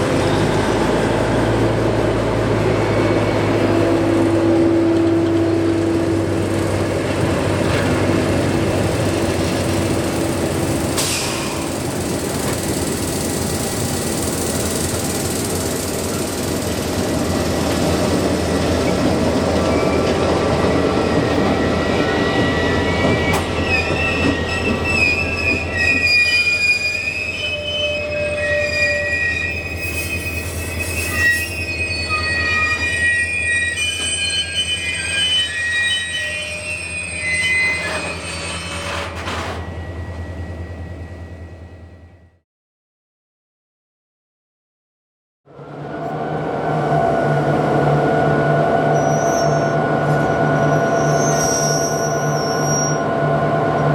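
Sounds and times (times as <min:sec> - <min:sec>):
diesel locomotive engine: 0:00.0 - 0:42.4, 0:45.5 - 0:53.9
low train rumble: 0:00.0 - 0:42.4, 0:45.5 - 0:53.9
train wheels squealing on rails: 0:00.2 - 0:42.4, 0:47.3 - 0:53.9.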